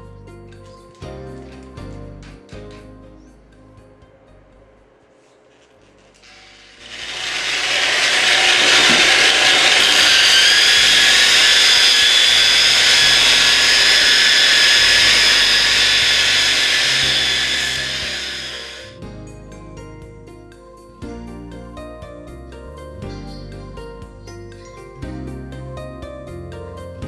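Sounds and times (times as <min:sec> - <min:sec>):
grinder polishing marble: 0:06.2 - 0:19.0.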